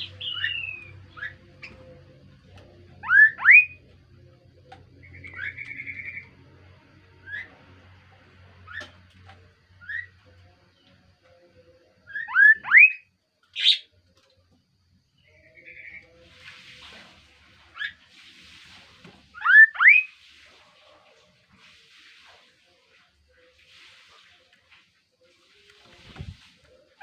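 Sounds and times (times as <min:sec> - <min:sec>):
bird chirps: 0:00.0 - 0:01.9, 0:03.0 - 0:03.8, 0:12.0 - 0:13.9.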